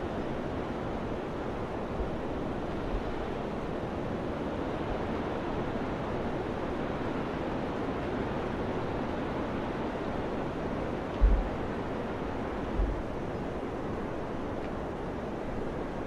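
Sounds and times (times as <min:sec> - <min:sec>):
wind buffeting microphone: 0:11.0 - 0:14.1
wind blowing: 0:11.0 - 0:14.2
brief low thumps: 0:11.2 - 0:11.5, 0:12.8 - 0:13.0.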